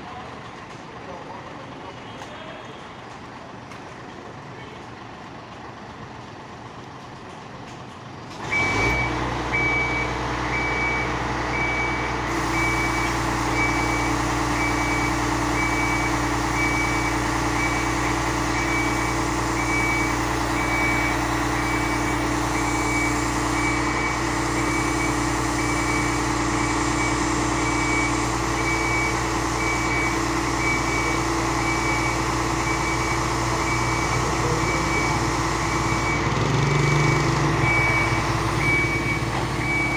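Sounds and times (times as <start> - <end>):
fire truck engine running: 2.9 - 39.9
high warning beeper: 8.6 - 39.9.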